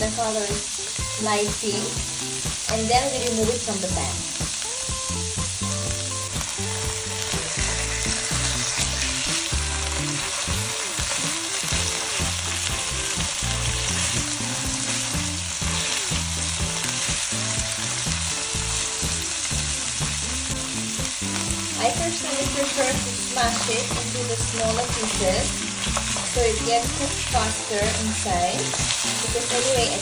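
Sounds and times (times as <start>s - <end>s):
fish sizzling in a pan: 0.0s - 30.0s
spatula turning fish: 6.2s - 30.0s.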